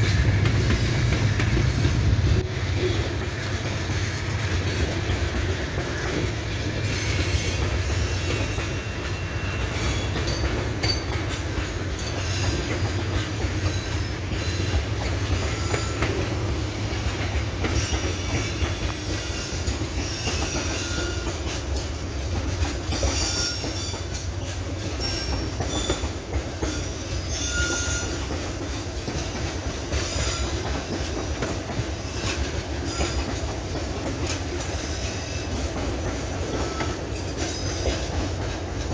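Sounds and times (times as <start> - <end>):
train wheels rumbling on rails: 0.0 - 38.9
high-pitched wheel squeals: 24.9 - 28.3.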